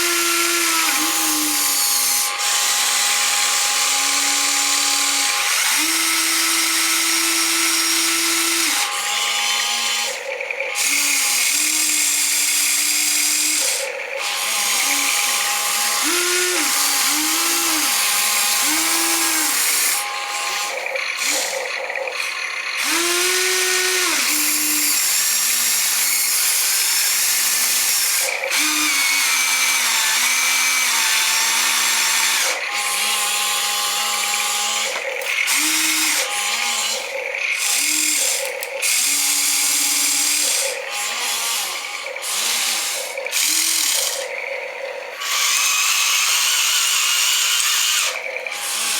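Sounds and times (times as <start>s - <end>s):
small electric motors whining: 0.0s - 48.9s.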